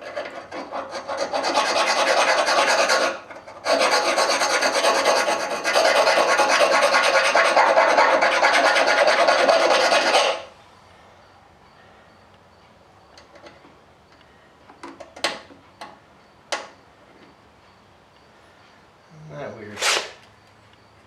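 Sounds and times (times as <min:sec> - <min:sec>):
file rasping metal: 0:00.0 - 0:10.5.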